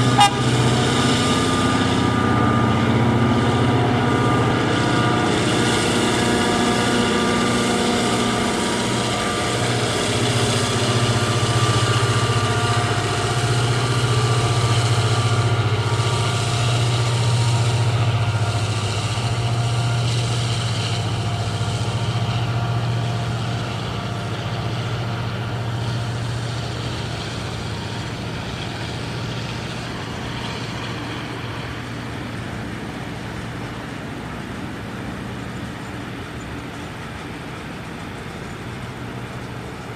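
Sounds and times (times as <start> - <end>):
locomotive deep drone: 0.0 - 39.9.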